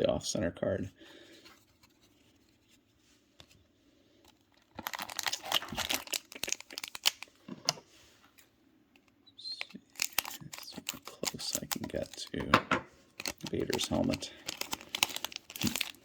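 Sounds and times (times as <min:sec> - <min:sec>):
wrapper crinkling and tearing: 0:04.5 - 0:07.4, 0:09.5 - 0:12.4, 0:13.2 - 0:16.0.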